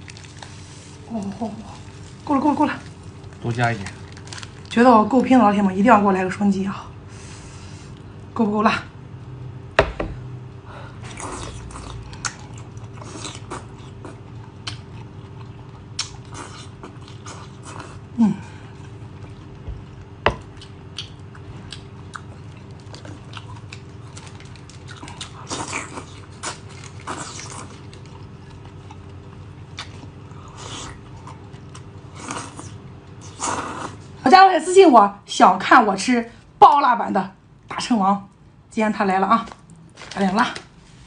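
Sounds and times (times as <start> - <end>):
person chewing noodles: 11.0 - 34.1.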